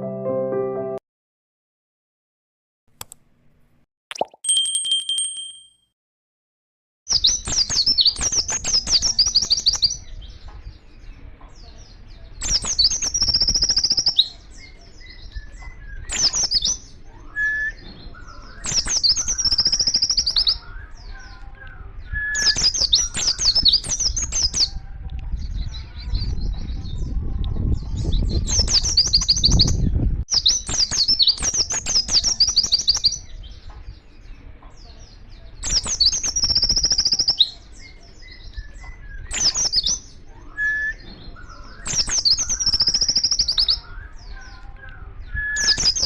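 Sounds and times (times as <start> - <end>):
bird singing chattering trills: 7.1 - 24.7, 27.6 - 46.0.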